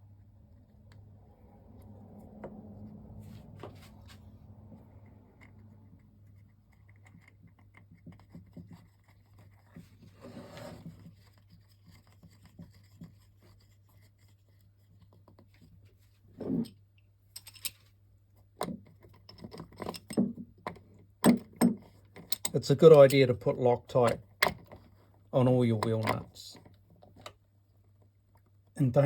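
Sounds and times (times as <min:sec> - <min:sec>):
soft rustle: 0:01.8 - 0:04.8.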